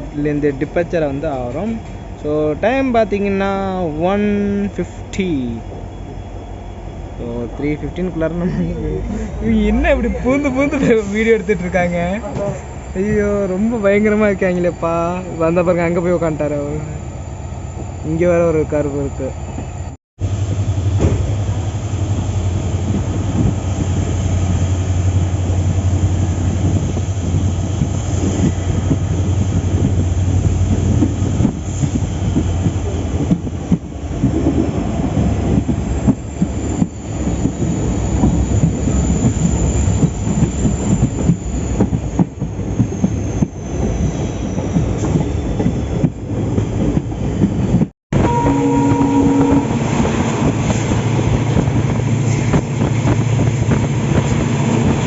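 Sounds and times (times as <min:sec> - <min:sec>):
train wheels rumbling on rails: 0:00.0 - 0:55.0
faint high wheel squeal: 0:09.2 - 0:19.9, 0:36.0 - 0:46.1, 0:48.2 - 0:50.3.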